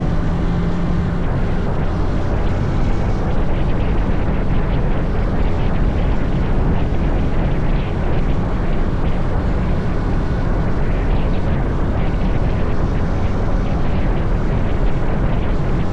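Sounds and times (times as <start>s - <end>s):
motorbike engine running: 0.0s - 4.4s
wind on microphone: 0.0s - 15.9s.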